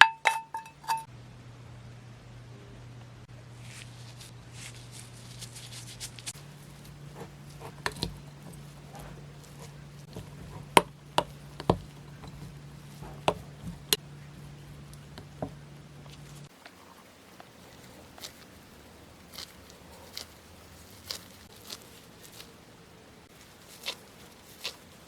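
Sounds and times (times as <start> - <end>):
kitchen utensils knocking: 0.0 - 1.1, 7.1 - 16.4
steady low hum: 0.0 - 25.0.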